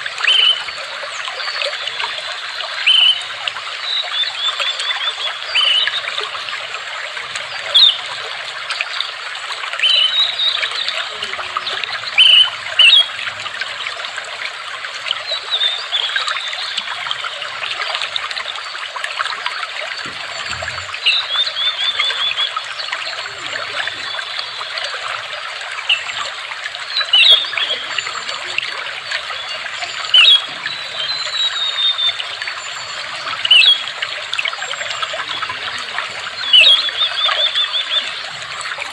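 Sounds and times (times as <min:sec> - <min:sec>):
water trickling: 0:00.0 - 0:38.9
birds chirping and trilling: 0:19.9 - 0:24.9, 0:34.8 - 0:38.9.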